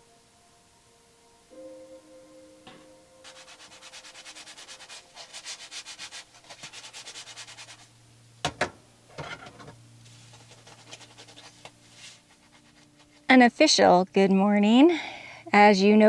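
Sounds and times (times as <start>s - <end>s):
cooking utensil scraping: 8.5s - 13.2s.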